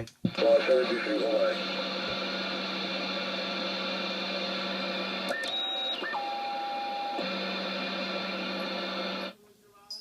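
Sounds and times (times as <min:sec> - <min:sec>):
radio static hiss: 0:00.0 - 0:06.3, 0:07.1 - 0:09.6.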